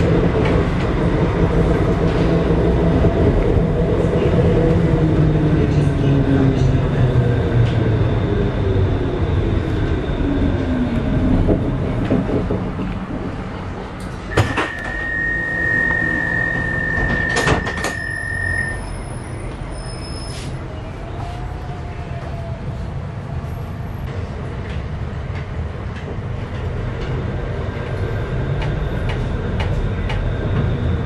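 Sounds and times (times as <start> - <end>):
tram drive whining down: 0.0 - 31.0
steady high beep: 14.4 - 19.0.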